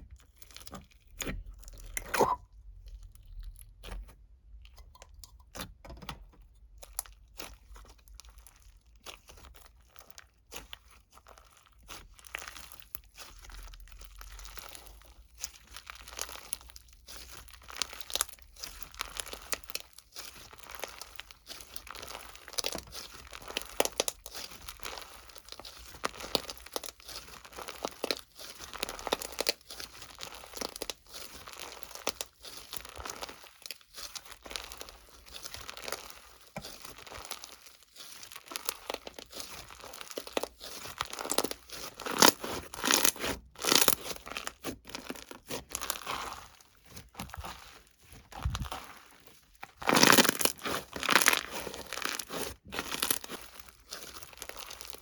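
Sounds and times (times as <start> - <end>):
paper or plastic crinkling: 15.7 - 55.0
small tearing sounds: 16.0 - 55.0.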